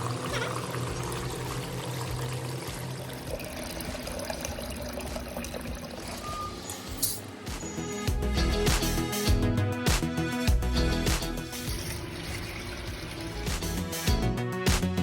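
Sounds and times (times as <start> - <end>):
water pouring and trickling: 0.0 - 7.4, 11.5 - 14.1.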